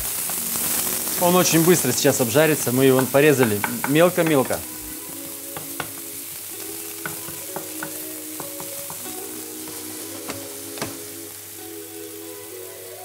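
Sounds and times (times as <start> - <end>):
onion sizzling in oil: 0.0 - 13.0
wooden spatula clicks and taps: 2.9 - 4.6, 5.6 - 11.0.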